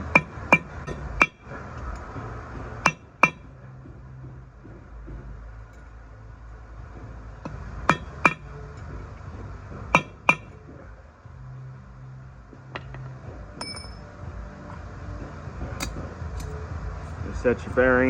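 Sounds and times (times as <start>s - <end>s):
hammer striking steel punch: 0.1s - 1.5s, 2.8s - 3.5s, 7.9s - 8.5s, 9.9s - 10.6s, 13.6s - 14.0s.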